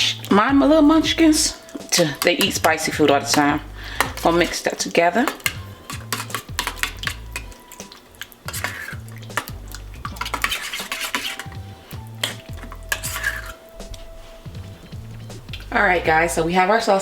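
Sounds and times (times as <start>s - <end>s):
spoon scraping a bowl: 1.6s - 14.5s.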